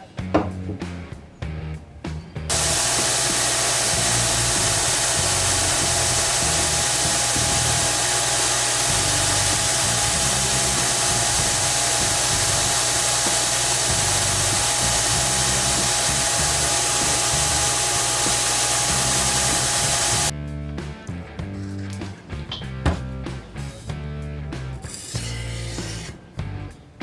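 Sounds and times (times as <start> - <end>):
electric power tool motor whining: 2.5 - 20.3.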